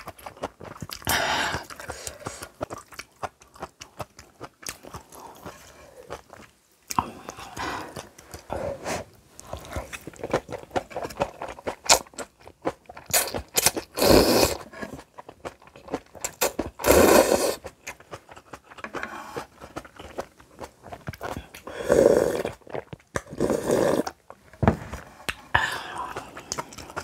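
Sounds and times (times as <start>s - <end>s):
crunching and chewing: 0.0s - 8.5s, 9.4s - 27.0s
slurping noodles: 13.1s - 15.1s, 16.3s - 17.7s, 21.2s - 24.2s.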